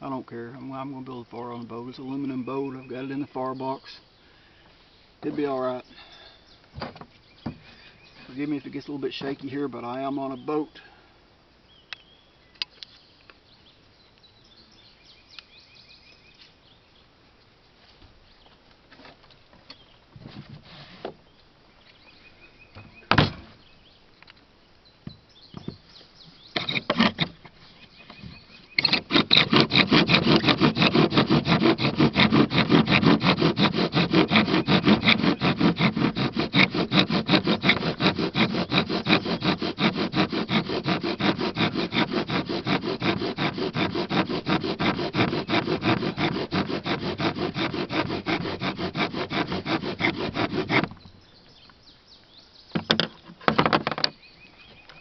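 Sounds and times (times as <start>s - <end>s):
wooden spindle rasping: 26.5s - 51.1s
wooden knocks: 52.8s - 54.2s.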